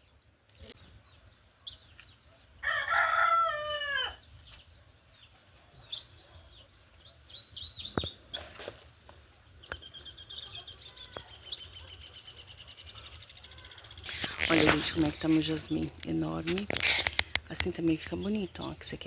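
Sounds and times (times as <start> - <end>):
rooster crowing: 2.6 - 4.2.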